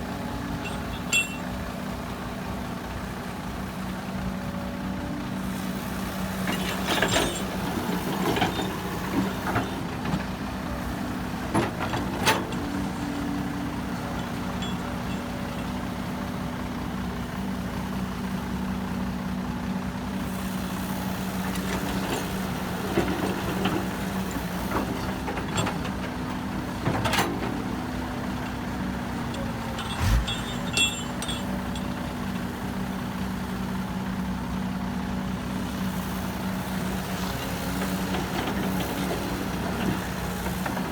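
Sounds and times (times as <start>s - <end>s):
heavy diesel engine running: 0.0s - 40.9s
sharp metallic knocks and clanks: 0.6s - 1.4s, 29.7s - 31.8s.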